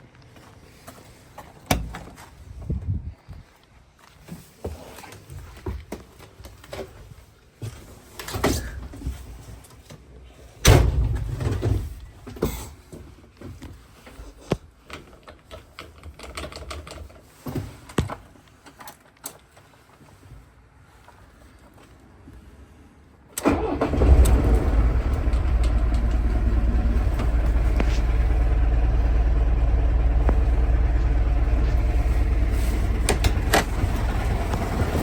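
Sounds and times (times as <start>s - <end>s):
heavy low thump: 25.1s - 34.8s.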